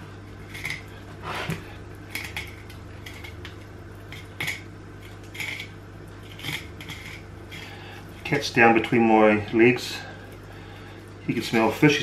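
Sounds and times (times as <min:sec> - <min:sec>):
steady low hum: 0:00.0 - 0:12.0
knife scraping fish: 0:04.1 - 0:08.3.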